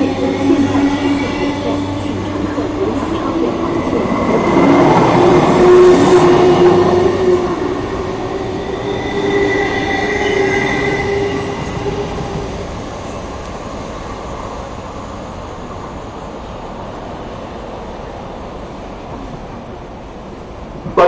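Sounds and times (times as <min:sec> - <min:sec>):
train whining tones: 0:00.0 - 0:15.0
train wheels rumbling on rails: 0:00.0 - 0:21.0.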